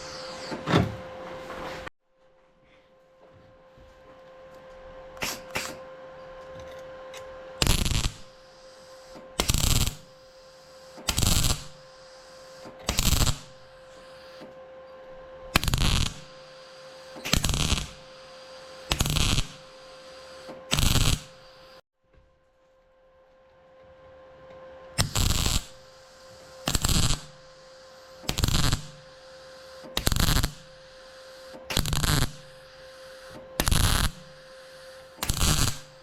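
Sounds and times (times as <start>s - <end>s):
steady hum: 2.6s - 21.8s, 23.0s - 36.0s
welding crackling bursts: 7.6s - 8.4s, 9.0s - 10.1s, 11.0s - 11.8s, 12.4s - 14.1s, 15.6s - 21.4s, 25.0s - 25.9s, 26.6s - 27.4s, 28.2s - 29.1s, 30.0s - 30.7s, 31.7s - 34.4s, 35.1s - 36.0s.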